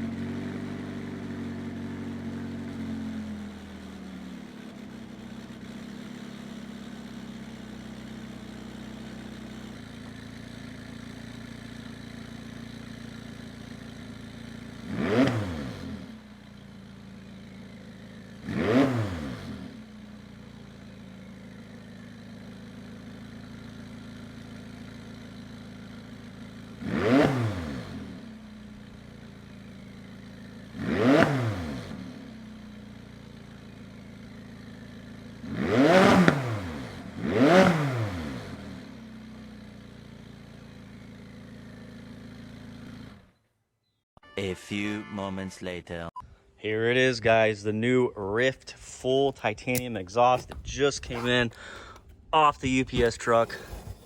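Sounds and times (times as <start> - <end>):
car engine idling: 0.0 - 43.4, 48.2 - 54.0
engine revs: 0.0 - 43.4.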